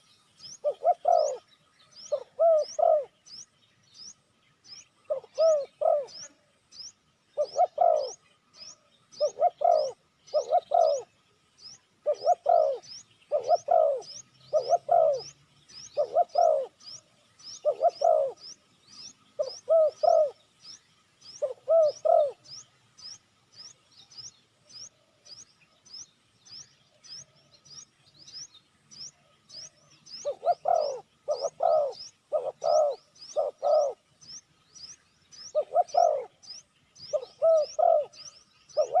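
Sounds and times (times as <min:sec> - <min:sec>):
dove cooing: 0:00.0 - 0:03.3, 0:05.0 - 0:06.3, 0:07.4 - 0:11.2, 0:12.0 - 0:18.6, 0:19.4 - 0:20.4, 0:21.2 - 0:22.6, 0:29.6 - 0:34.1, 0:35.4 - 0:39.0.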